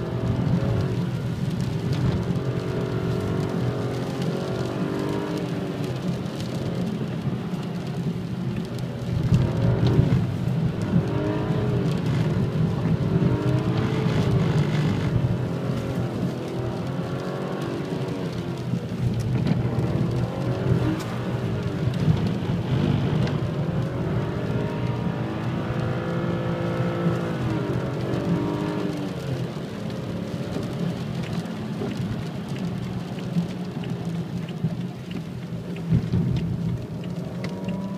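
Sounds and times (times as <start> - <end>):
road and tyre noise: 0.0 - 37.9
car engine revving: 9.0 - 31.4.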